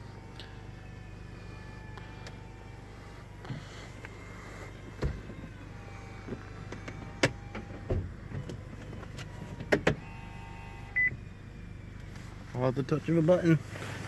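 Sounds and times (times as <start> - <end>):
low motor hum: 0.0 - 14.0
mechanism clicks and clunks: 6.3 - 10.0.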